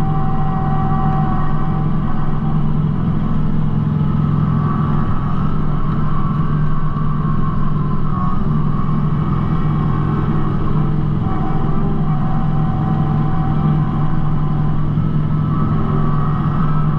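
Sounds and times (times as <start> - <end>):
faint high whine: 0.0 - 16.9
tractor diesel engine running: 0.0 - 16.9.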